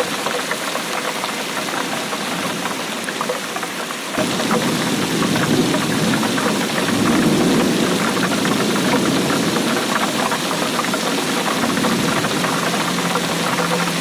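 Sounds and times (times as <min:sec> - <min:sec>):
steady rainfall: 0:00.0 - 0:14.0.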